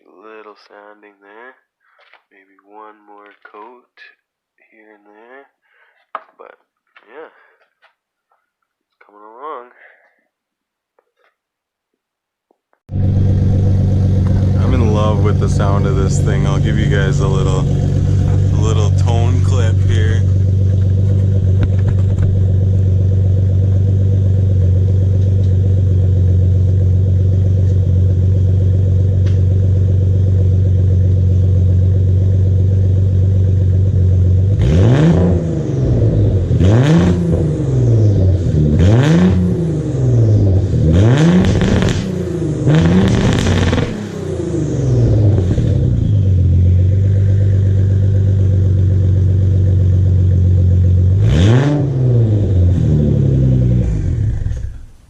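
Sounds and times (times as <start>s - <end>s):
car engine idling: 12.9s - 55.0s
car engine revving in quick blips: 34.4s - 49.9s, 51.0s - 55.0s.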